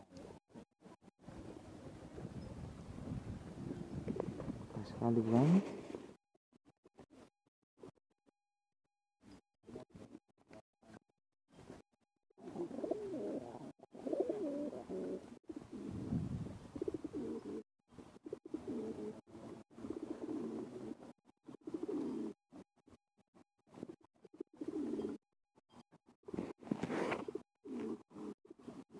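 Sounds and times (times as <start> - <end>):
pigeon cooing: 12.4 - 22.6, 23.7 - 25.2, 26.3 - 28.9.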